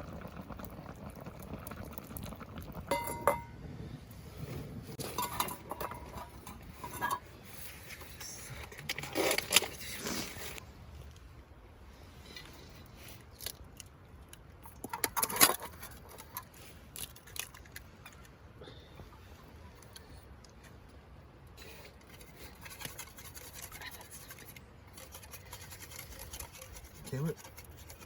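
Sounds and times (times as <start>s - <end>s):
scraping and handling noises: 4.9s - 10.6s.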